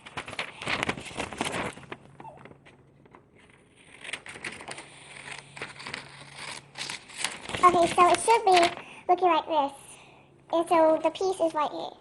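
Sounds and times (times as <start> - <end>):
paper rustling: 0.0 - 9.3, 10.6 - 11.6
scissors snipping paper: 3.9 - 8.8.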